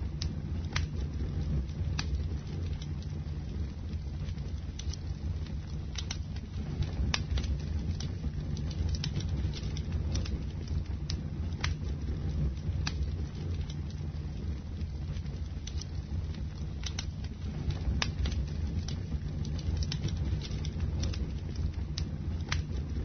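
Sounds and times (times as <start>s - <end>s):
bonfire flames rumbling: 0.0s - 23.0s
fire crackling and popping: 0.0s - 23.0s.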